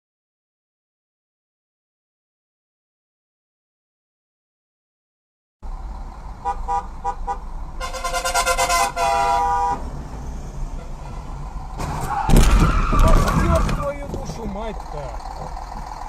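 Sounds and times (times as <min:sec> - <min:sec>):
road noise: 0:05.6 - 0:16.0
car horn honking: 0:06.4 - 0:09.9, 0:10.8 - 0:11.4
loud sudden impact: 0:11.8 - 0:14.0.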